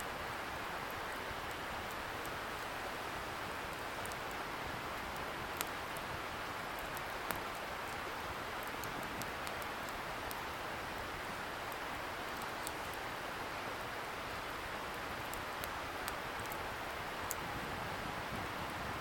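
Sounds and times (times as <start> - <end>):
bonfire crackling and popping: 0.8 - 13.0, 14.4 - 17.6.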